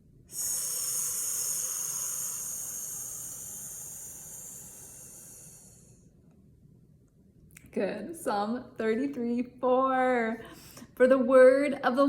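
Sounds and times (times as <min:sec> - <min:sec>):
woman exhaling with a hiss: 0:00.3 - 0:06.1.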